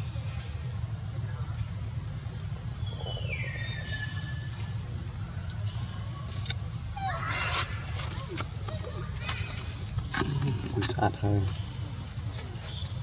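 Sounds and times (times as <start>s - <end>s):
steady low hum: 0.0s - 13.0s
monkey squealing and screeching: 7.0s - 9.1s.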